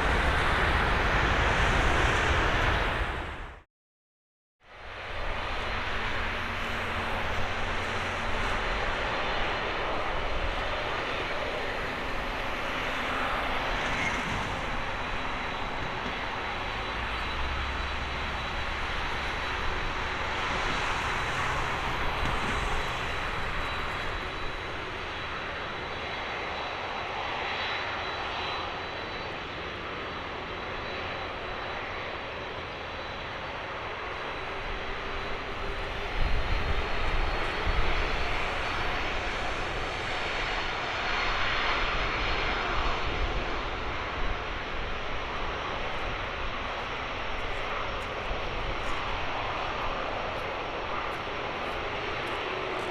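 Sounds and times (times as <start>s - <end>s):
jet engines roaring: 0.0s - 3.6s, 4.8s - 52.9s.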